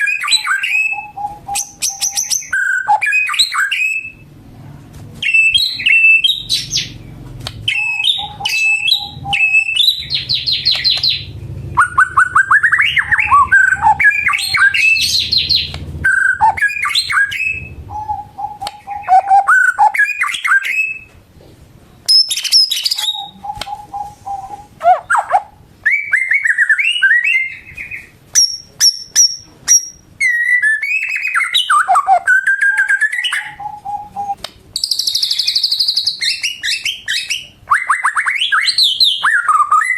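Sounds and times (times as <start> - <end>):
songbird singing: 0.0 - 4.3, 5.2 - 21.1, 22.0 - 39.9
faint low rumble: 6.3 - 19.2.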